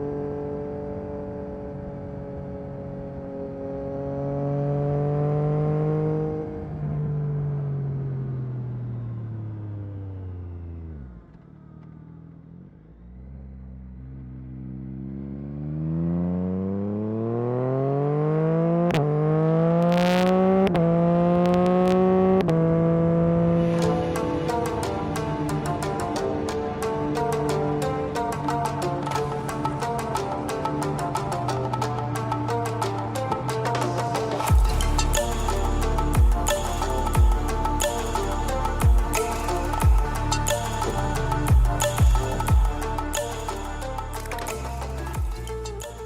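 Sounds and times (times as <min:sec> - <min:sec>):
motorcycle engine: 0:00.1 - 0:46.0.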